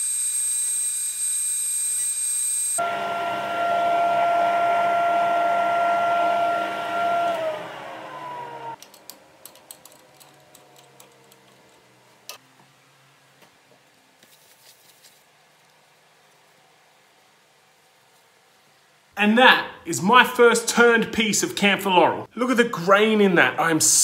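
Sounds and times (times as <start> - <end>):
wood lathe whining: 2.8 - 12.0.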